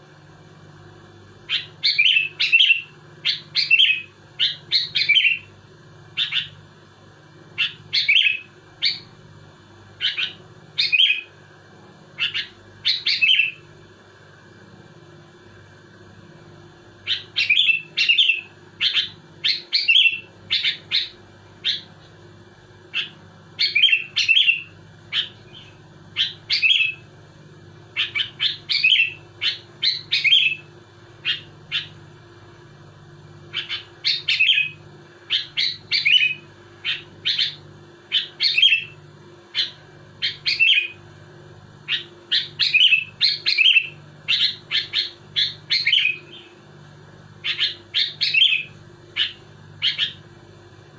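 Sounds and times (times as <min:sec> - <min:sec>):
bird singing whistled notes: 0:01.5 - 0:05.5, 0:07.6 - 0:09.1, 0:10.0 - 0:11.3, 0:12.2 - 0:13.6, 0:17.1 - 0:21.9, 0:23.0 - 0:27.0, 0:28.0 - 0:31.9, 0:33.5 - 0:39.0, 0:39.6 - 0:41.0, 0:41.9 - 0:46.5, 0:47.4 - 0:50.2.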